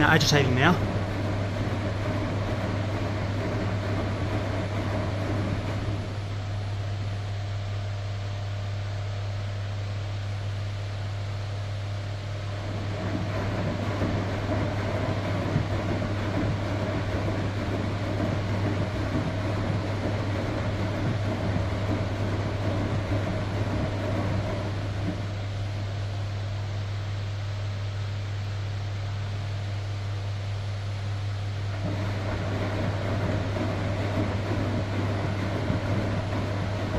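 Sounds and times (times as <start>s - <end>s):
washing machine agitating: 0.0s - 6.8s, 12.3s - 26.4s, 31.6s - 36.9s.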